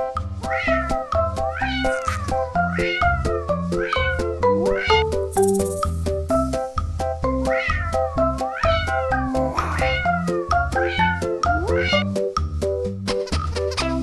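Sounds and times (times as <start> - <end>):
cat meowing: 0.5 - 5.1, 7.5 - 12.2
upbeat music with steady beat: 4.2 - 7.4, 9.3 - 14.0.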